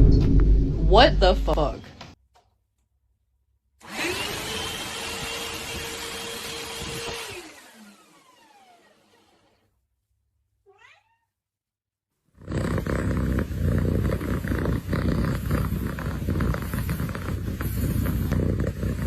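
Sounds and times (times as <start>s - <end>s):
cat purring loudly: 12.3s - 19.0s.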